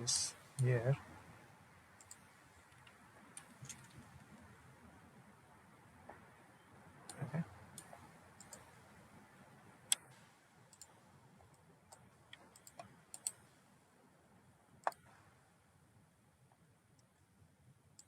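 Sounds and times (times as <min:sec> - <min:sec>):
faint steady hiss: 0:00.0 - 0:18.0
computer mouse clicks: 0:02.0 - 0:04.2, 0:07.1 - 0:08.7, 0:09.9 - 0:13.5, 0:14.8 - 0:15.2.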